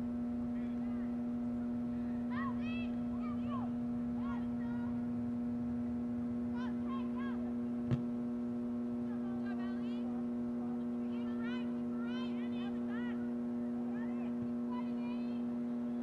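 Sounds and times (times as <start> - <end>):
steady hum: 0.0 - 16.0
distant voices calling and shouting: 0.5 - 8.1.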